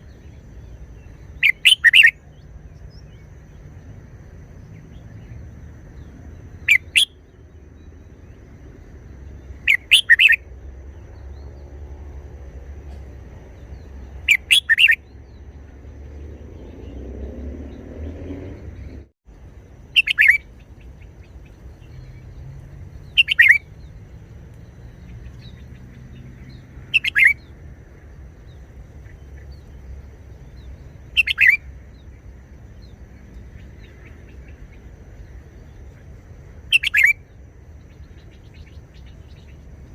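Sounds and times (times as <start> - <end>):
bird singing short phrases: 0.0 - 3.6, 4.6 - 7.4, 9.3 - 11.5, 13.0 - 15.6, 19.9 - 27.6, 28.5 - 32.2, 36.7 - 39.6.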